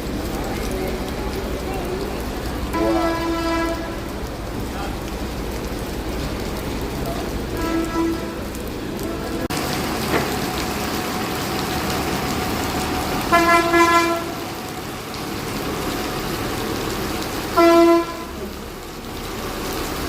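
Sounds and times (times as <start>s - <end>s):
rain falling: 0.0s - 20.0s
vehicle horn honking: 2.8s - 4.1s, 7.6s - 8.5s, 13.3s - 14.4s, 17.6s - 18.4s.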